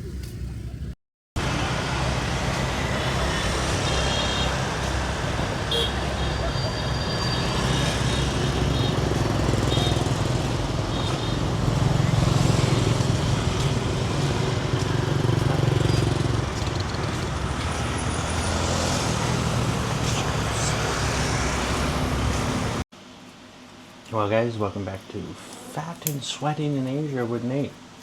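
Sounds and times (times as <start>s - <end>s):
road traffic rumble: 0.0s - 22.9s
vehicle passing close: 1.4s - 22.8s.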